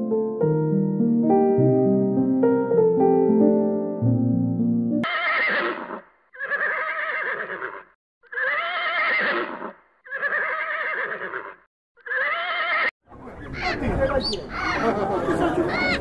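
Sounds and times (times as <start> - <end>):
horse whinnying: 5.0 - 12.9.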